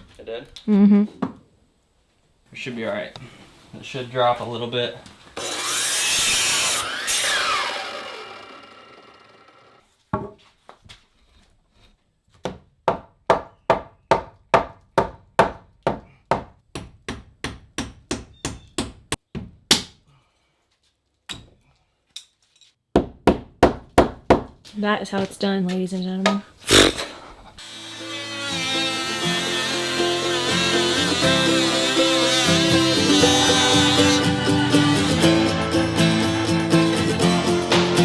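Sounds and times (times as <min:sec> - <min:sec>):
harsh rasping tool: 0:05.4 - 0:09.8, 0:26.6 - 0:35.9.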